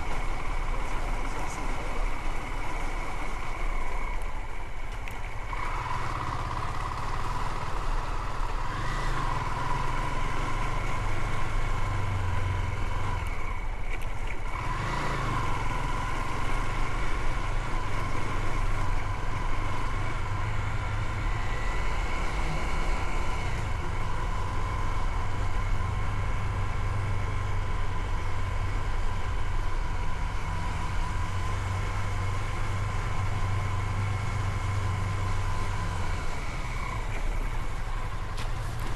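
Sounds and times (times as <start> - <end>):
motorcycle engine running: 0.0 - 38.3
road and wind noise: 0.0 - 38.9.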